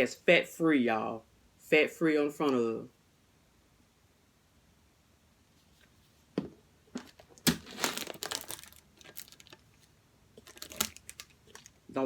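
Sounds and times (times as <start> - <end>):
plastic packaging crinkling: 7.0 - 12.0.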